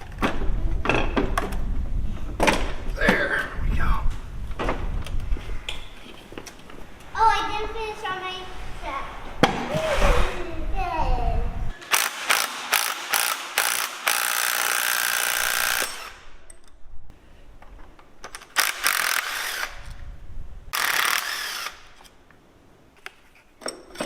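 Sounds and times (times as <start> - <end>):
ratchet wrench ratcheting: 11.8 - 16.2, 18.6 - 19.9, 20.8 - 21.9.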